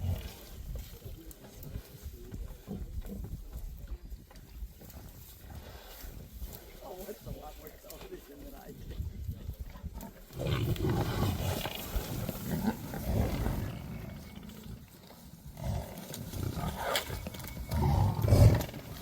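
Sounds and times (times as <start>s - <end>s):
lions growling: 0.0s - 0.6s, 10.2s - 19.0s.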